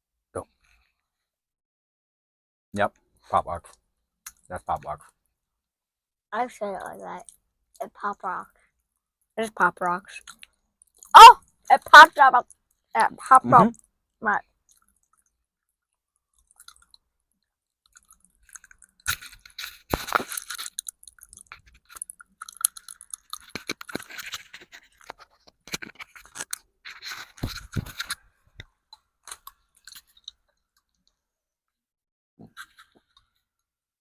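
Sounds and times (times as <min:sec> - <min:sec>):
chewing: 0:10.2 - 0:11.1, 0:16.2 - 0:17.1, 0:17.8 - 0:19.5, 0:20.3 - 0:25.2
popping candy crackling in mouth: 0:16.3 - 0:17.0, 0:17.8 - 0:28.2.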